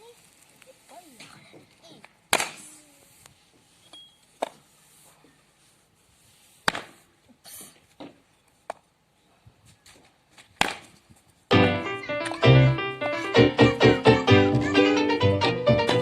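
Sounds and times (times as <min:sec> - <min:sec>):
axe chopping wood: 0:02.3 - 0:02.6, 0:10.6 - 0:10.9.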